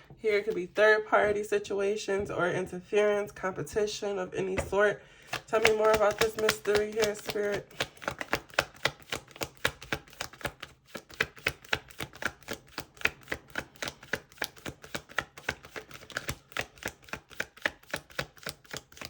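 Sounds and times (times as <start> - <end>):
cards being shuffled: 5.2 - 19.0.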